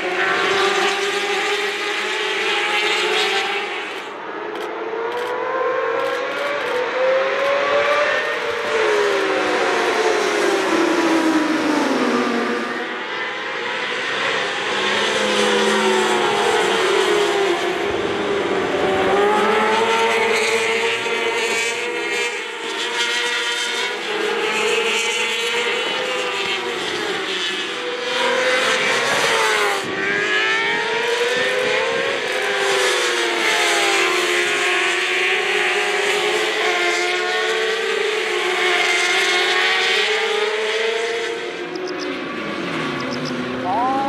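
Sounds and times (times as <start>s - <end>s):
racing motorcycles running hard: 0.0s - 44.0s.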